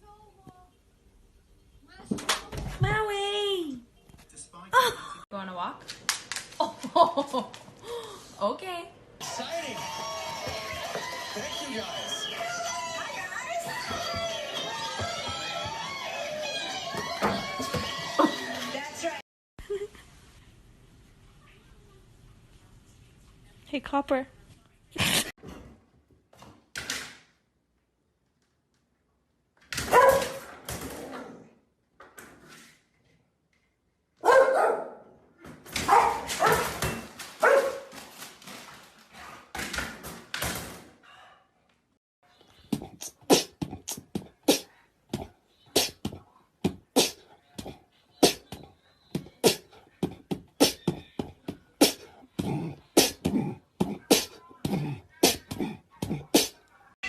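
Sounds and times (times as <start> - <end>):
dog barking and whining: 29.8 - 30.4, 34.2 - 35.0, 35.8 - 36.8, 37.4 - 37.9.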